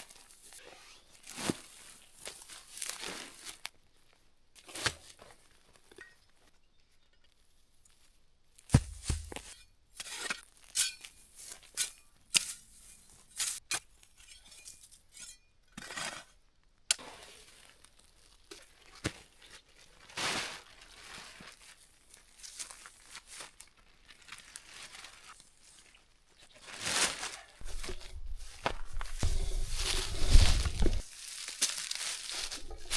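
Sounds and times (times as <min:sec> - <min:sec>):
crinkling rustles: 0:00.0 - 0:06.6, 0:17.0 - 0:32.9.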